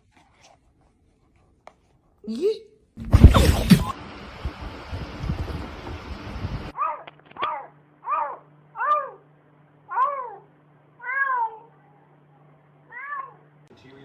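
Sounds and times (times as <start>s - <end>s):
cat meowing: 6.8s - 9.2s, 9.9s - 11.8s, 12.9s - 13.4s.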